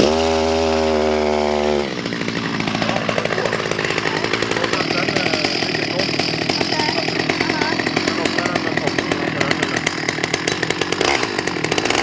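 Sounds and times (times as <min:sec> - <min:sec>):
chainsaw running: 0:00.0 - 0:12.0.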